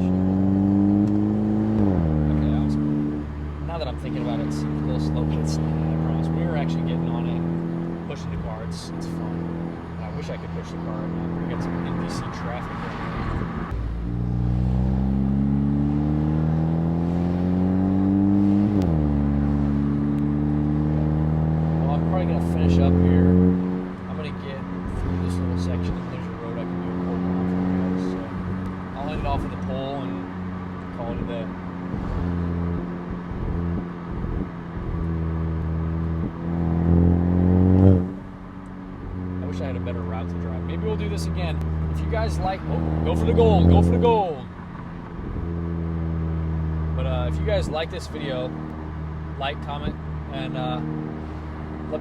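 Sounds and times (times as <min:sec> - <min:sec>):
car engine accelerating: 0:00.0 - 0:52.0.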